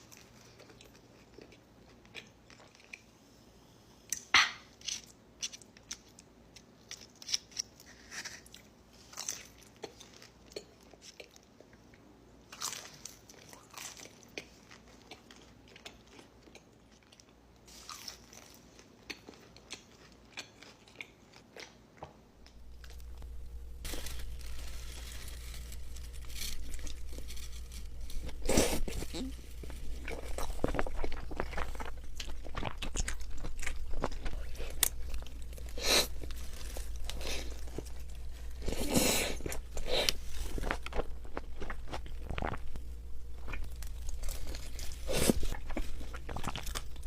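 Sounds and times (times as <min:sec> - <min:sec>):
chewing and crunching pizza: 0:00.0 - 0:03.3, 0:04.8 - 0:47.0
steady low hum: 0:22.3 - 0:47.0.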